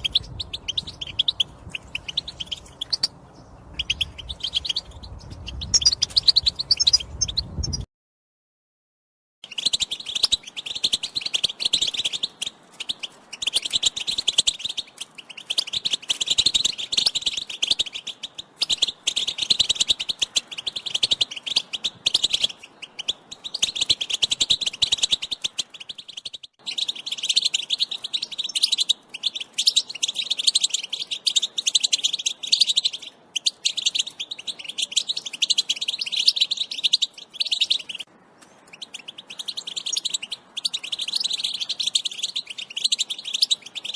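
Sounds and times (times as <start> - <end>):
goldfinch twittering: 0.0 - 7.8, 9.5 - 38.1, 38.7 - 43.9.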